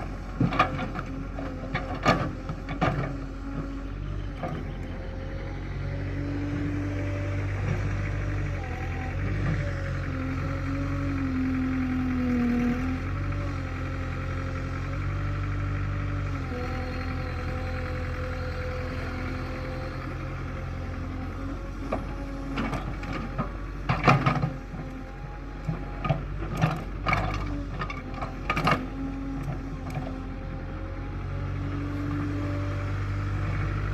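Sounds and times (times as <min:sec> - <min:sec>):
tractor diesel engine running: 0:00.0 - 0:33.9
sharp clanks and knocks: 0:00.4 - 0:03.2, 0:22.6 - 0:24.6.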